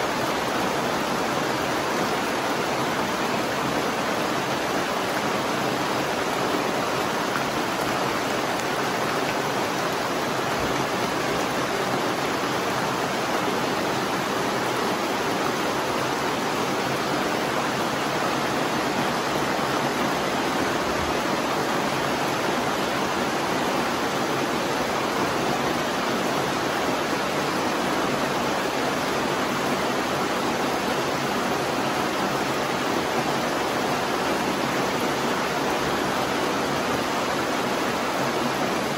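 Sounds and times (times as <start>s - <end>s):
heavy rainfall: 0.0s - 38.9s.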